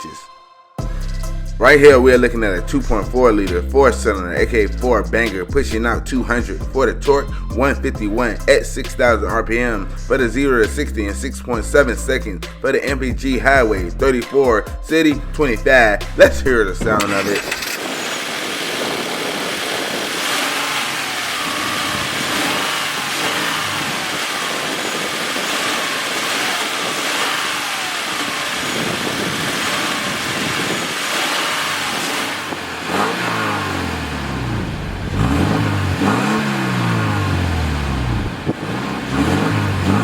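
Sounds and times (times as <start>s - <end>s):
car engine idling and revving: 0.8s - 14.3s, 15.1s - 40.0s.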